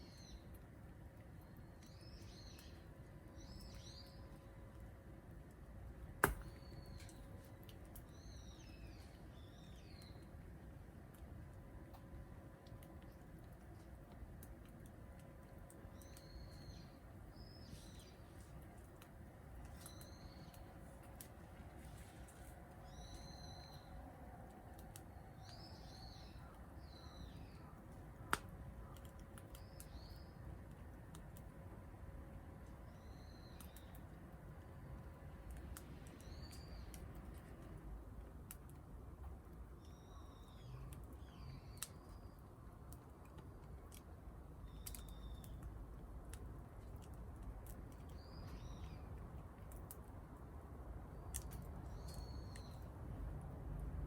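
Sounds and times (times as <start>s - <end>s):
faint wood fire crackling: 0.0s - 54.0s
fire popping: 6.1s - 8.2s
bird chirping: 19.7s - 20.7s, 22.8s - 24.0s, 25.3s - 27.7s, 32.9s - 34.0s, 48.1s - 49.1s, 51.2s - 52.9s.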